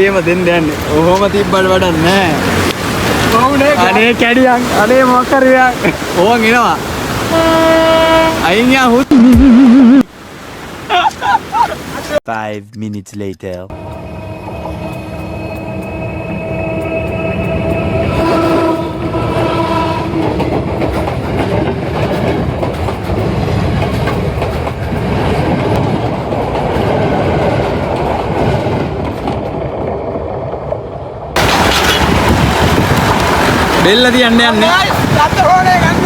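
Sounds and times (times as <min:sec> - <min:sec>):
train wheels rumbling and clattering: 0:00.0 - 0:06.1, 0:13.7 - 0:36.0
train horn: 0:07.3 - 0:08.5, 0:13.7 - 0:20.3.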